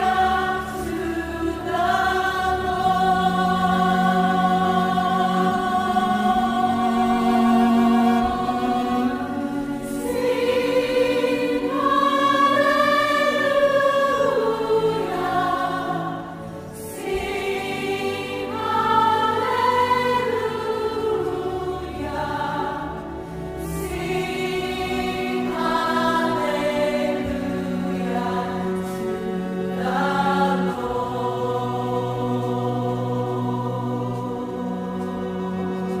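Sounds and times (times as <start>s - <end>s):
choir singing sacred music: 0.0s - 36.0s.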